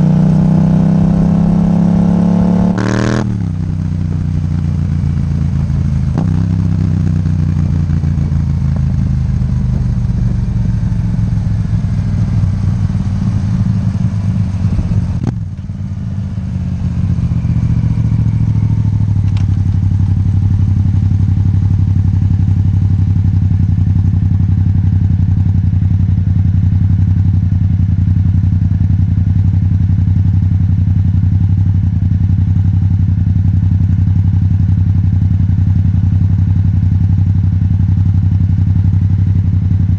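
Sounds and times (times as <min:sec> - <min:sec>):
motorcycle engine running: 0:00.0 - 0:39.9
sharp click: 0:19.2 - 0:19.6.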